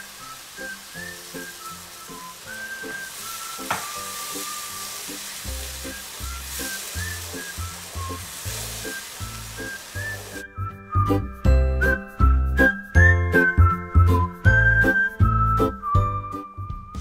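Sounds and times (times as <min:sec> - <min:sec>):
meat sizzling in a frying pan: 0:00.0 - 0:11.2
wooden spatula stirring: 0:02.4 - 0:10.5
sharp tap: 0:03.6 - 0:04.0.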